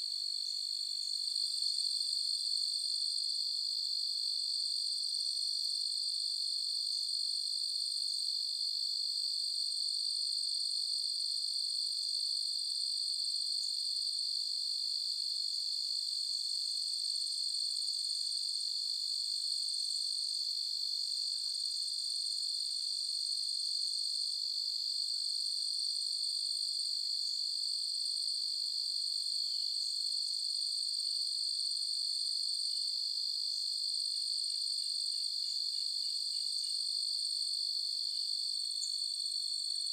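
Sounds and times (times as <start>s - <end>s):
crickets chirping: 0.2s - 2.0s, 15.5s - 23.4s, 24.5s - 30.8s, 31.8s - 39.9s.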